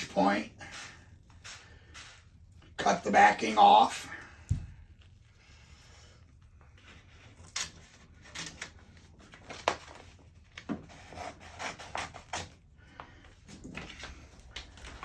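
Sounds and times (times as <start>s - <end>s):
paper rustling and crinkling: 6.8s - 12.6s.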